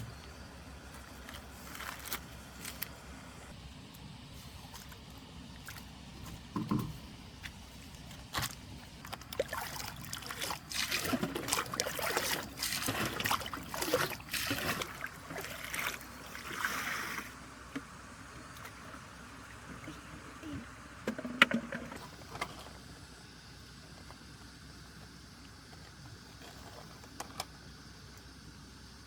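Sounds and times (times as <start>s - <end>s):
water splashing beside a boat: 4.5s - 17.6s
knocks on a boat: 6.6s - 7.0s.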